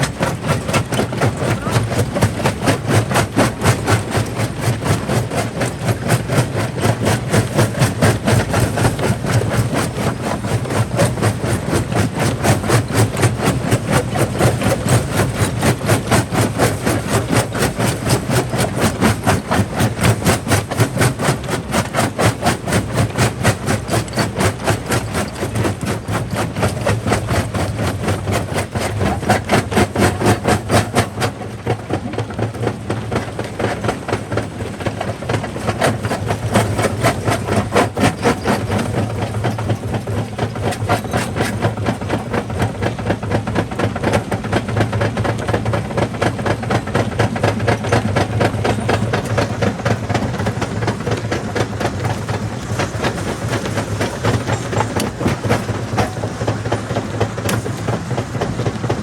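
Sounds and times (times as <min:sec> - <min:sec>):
rock crusher clattering knocks: 0:52.1 - 0:59.0.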